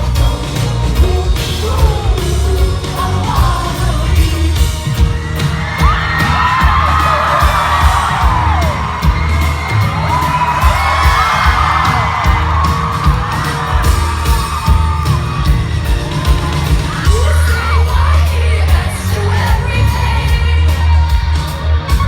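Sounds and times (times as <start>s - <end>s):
person singing: 0.0s - 8.2s, 16.6s - 22.0s
crowd whooping and cheering: 0.0s - 22.0s
heavy pulsing bass: 0.0s - 22.0s
live band playing: 0.0s - 22.0s.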